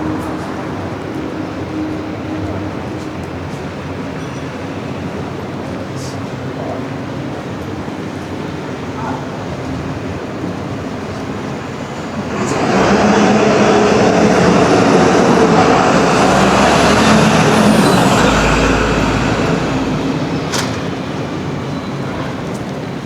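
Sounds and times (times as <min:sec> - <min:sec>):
high engine whine: 0:10.0 - 0:23.0
heavy vehicle engine passing: 0:10.8 - 0:23.0.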